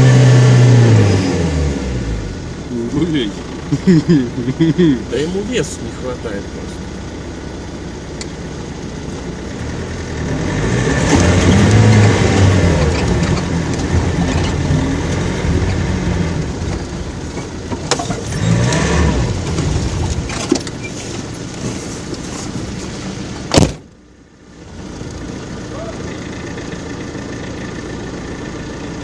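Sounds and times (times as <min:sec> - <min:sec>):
jeep engine revving hard: 0:00.0 - 0:02.3, 0:09.6 - 0:16.6, 0:18.1 - 0:20.1
sharp crack: 0:23.5 - 0:23.9.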